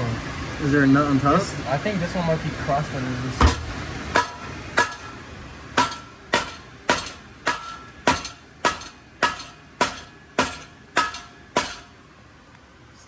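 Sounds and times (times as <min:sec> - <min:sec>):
hammer striking steel pipe: 0:03.4 - 0:05.2, 0:05.8 - 0:12.0.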